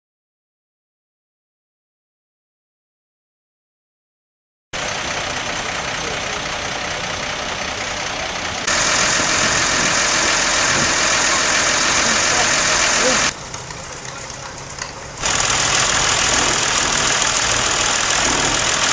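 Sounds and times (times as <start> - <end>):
tractor engines running: 4.8 - 18.9.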